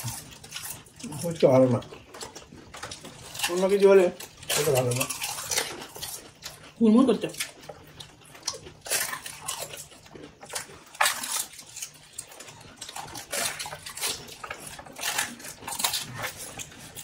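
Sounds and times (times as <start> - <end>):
crunching of crisp shells: 0.0 - 17.0.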